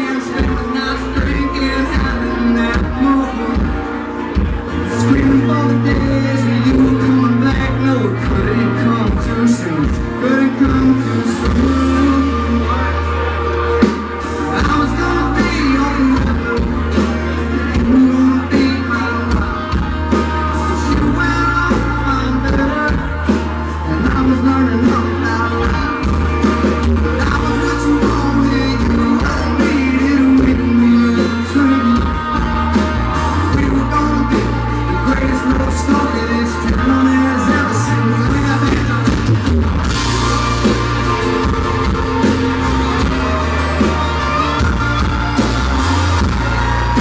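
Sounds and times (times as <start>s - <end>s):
live country band playing: 0.0s - 47.0s
man singing: 0.0s - 47.0s.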